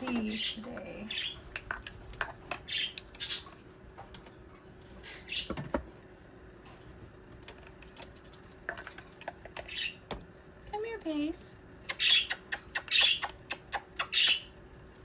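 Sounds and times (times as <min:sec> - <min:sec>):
parrots chirping: 0:00.1 - 0:03.7, 0:05.0 - 0:05.6, 0:09.6 - 0:10.1, 0:11.8 - 0:14.6.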